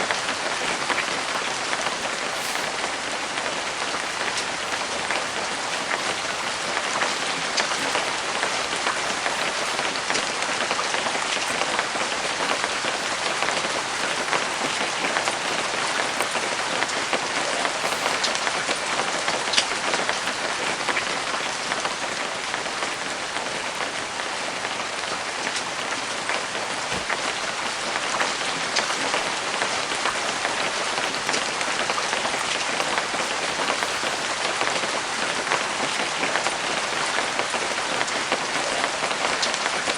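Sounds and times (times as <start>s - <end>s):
light rain pattering: 0.0s - 39.9s.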